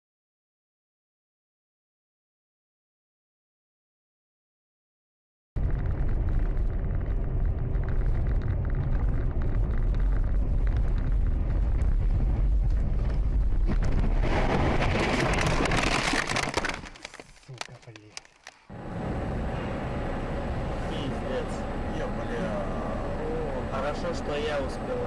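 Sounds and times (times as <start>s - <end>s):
car engine and road noise: 5.6s - 14.2s, 16.2s - 25.0s
harsh rushing noise: 5.6s - 17.0s.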